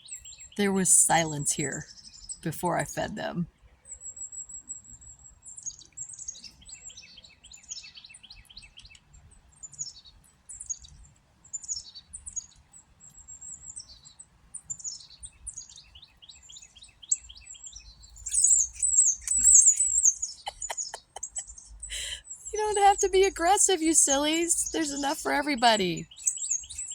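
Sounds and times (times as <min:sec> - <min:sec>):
songbirds chirping: 0:00.0 - 0:26.9
warbling bird calls: 0:18.2 - 0:26.9.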